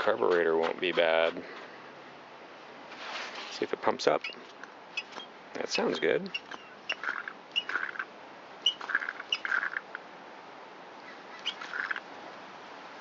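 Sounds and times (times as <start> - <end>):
primer bulb squeaky pumps: 6.3 - 9.8.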